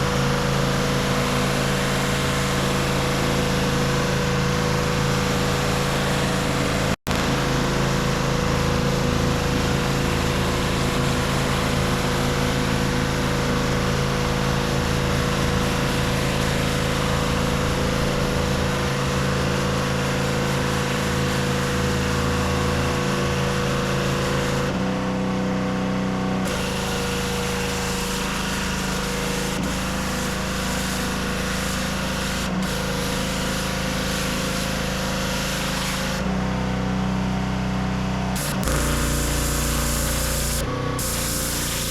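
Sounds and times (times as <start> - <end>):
pressure washer engine running: 0.0 - 41.9
water spray hissing: 26.5 - 36.2, 38.4 - 41.9.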